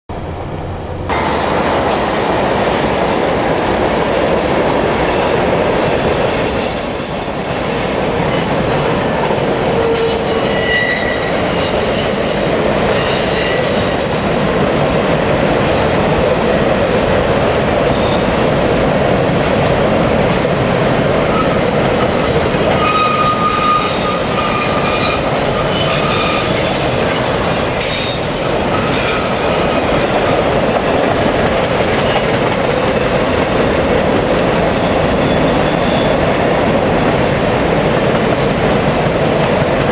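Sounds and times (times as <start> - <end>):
freight train rumbling past: 0.1 - 39.9
high-pitched wheel squeals: 5.4 - 15.1, 22.8 - 29.8.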